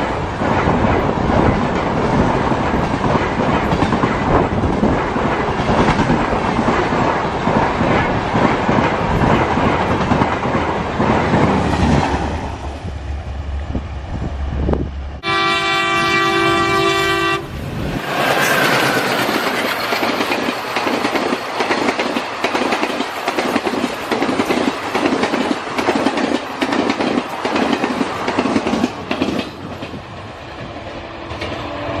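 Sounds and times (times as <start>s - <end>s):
wheels clacking over rail joints: 0.0s - 12.5s, 18.0s - 30.1s
train rumbling on rails: 0.0s - 32.0s
train horn: 15.2s - 17.6s.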